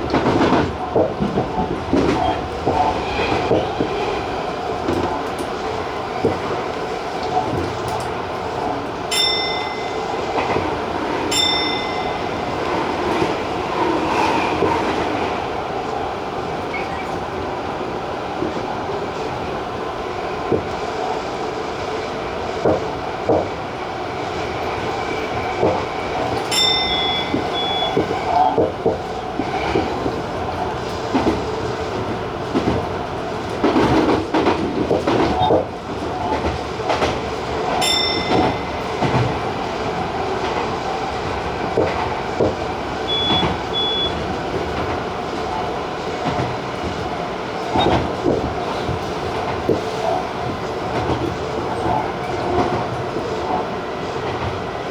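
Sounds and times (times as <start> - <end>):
train rattle: 0.0 - 54.9
train wheels clacking over rail joints: 24.6 - 54.7
short high beeps: 43.1 - 44.2.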